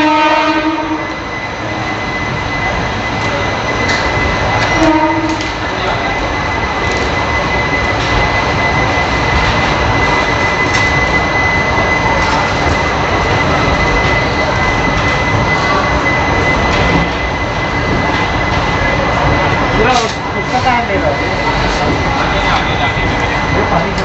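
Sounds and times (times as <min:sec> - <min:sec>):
thin steady whine: 0:00.0 - 0:24.0
train wheels rumbling on track: 0:00.0 - 0:24.0.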